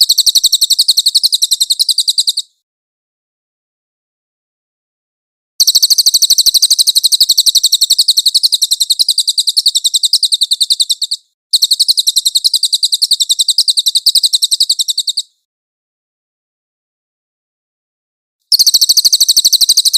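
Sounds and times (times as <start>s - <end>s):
songbird rapid rolling song: 0.0s - 2.5s, 5.6s - 15.4s, 18.5s - 19.9s.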